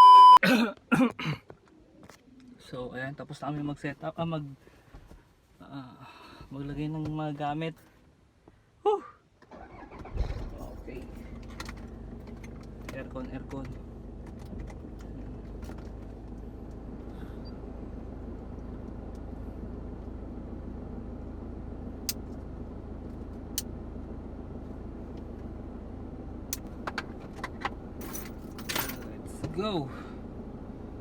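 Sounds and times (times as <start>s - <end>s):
vehicle engine humming: 9.5s - 31.0s.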